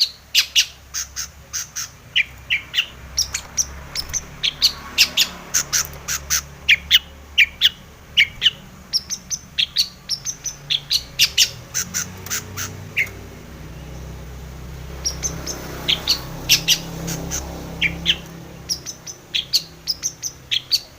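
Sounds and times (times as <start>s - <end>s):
bird singing sharp chirps: 0.0s - 20.9s.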